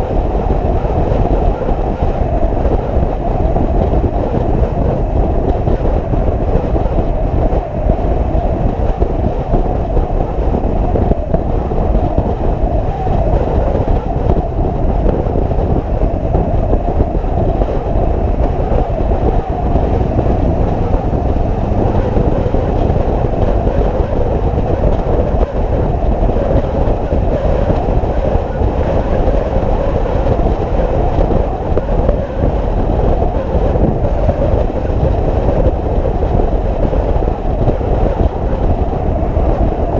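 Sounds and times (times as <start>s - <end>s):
motorcycle riding: 16.5s - 34.9s.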